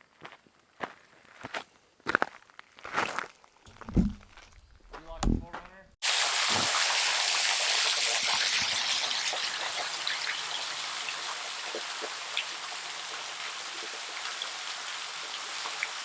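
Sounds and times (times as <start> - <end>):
water drips and splashes: 6.0 - 16.0
waterfall pouring: 6.0 - 16.0.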